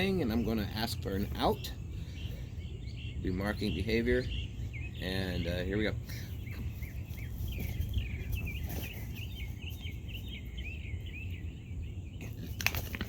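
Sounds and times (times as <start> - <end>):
birds chirping rapidly: 0.0 - 13.0
low outdoor rumble: 0.0 - 13.0.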